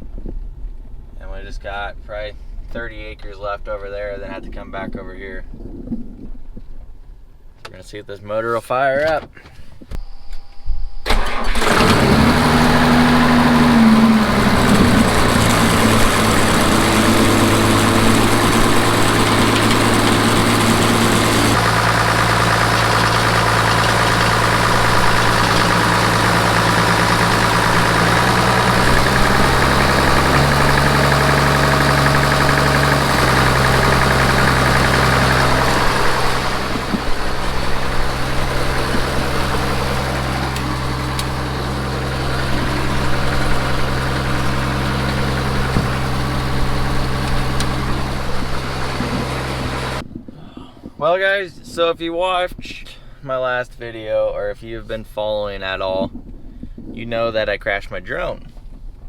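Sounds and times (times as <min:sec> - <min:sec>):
irrigation engine starting and running: 0:11.0 - 0:50.0.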